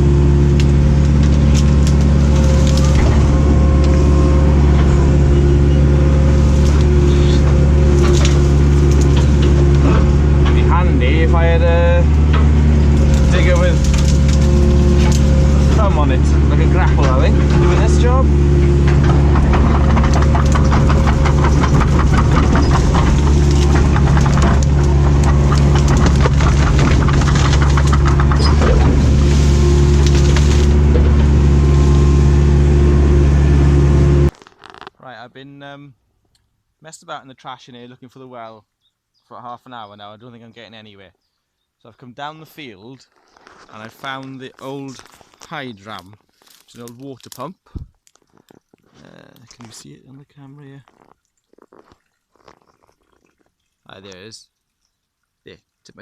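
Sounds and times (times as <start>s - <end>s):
excavator diesel engine running: 0.0s - 34.3s
cracks and knocks: 0.5s - 32.6s, 44.6s - 49.0s.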